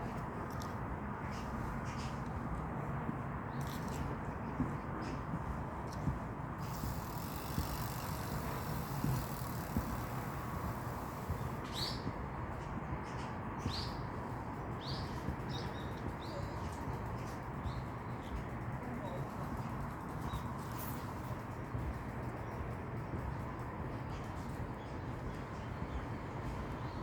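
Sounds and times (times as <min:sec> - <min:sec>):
steady low background noise: 0:00.0 - 0:27.0
small bird chirping: 0:06.6 - 0:12.1.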